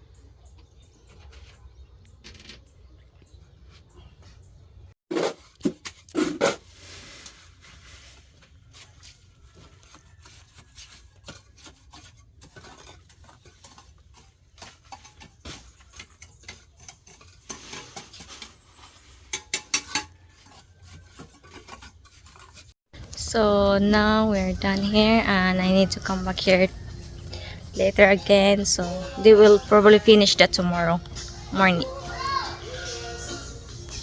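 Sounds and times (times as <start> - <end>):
hand tools scraping and clinking: 5.1 - 23.2.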